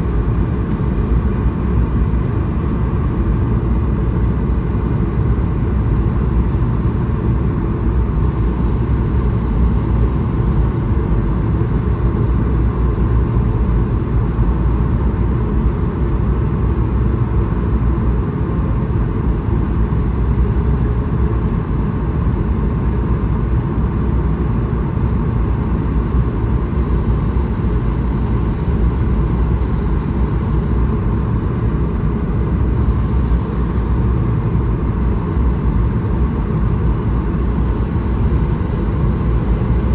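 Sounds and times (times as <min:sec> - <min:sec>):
airliner cabin rumble: 0:25.0 - 0:39.9.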